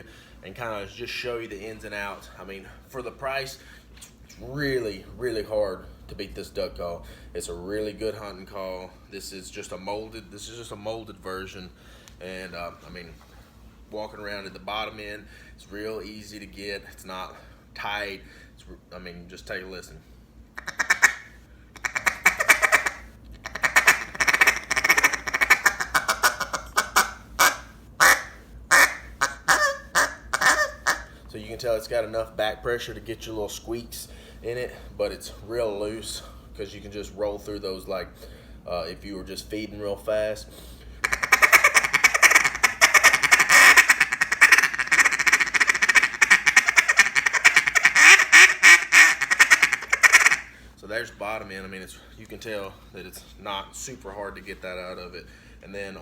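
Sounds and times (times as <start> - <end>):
duck call quacks: 20.6 - 31.2, 41.0 - 50.5
duck call rolling notes: 20.6 - 31.2, 41.0 - 50.6.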